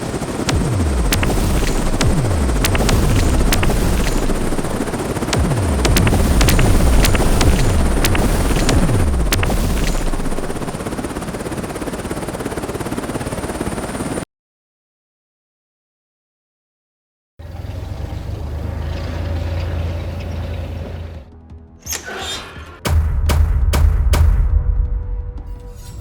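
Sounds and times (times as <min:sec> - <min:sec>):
helicopter rotor noise: 0:00.0 - 0:14.2
sharp clicks: 0:00.5 - 0:10.8.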